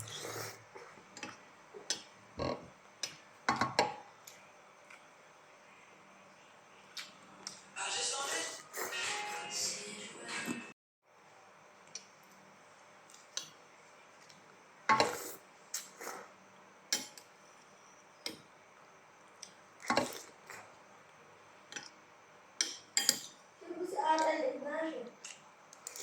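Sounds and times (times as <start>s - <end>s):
cutlery clinking on a dish: 22.6s - 23.4s.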